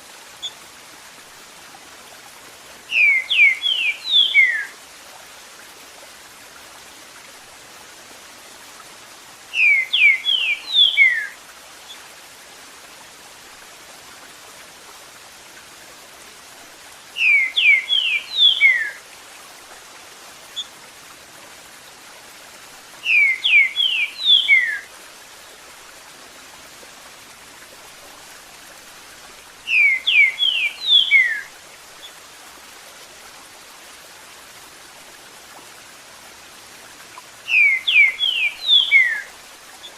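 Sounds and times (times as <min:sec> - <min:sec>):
running water hiss: 0:00.0 - 0:39.9
bird singing whistled notes: 0:02.9 - 0:04.7, 0:09.5 - 0:11.3, 0:17.2 - 0:19.0, 0:23.0 - 0:24.9, 0:29.7 - 0:31.5, 0:37.5 - 0:39.3.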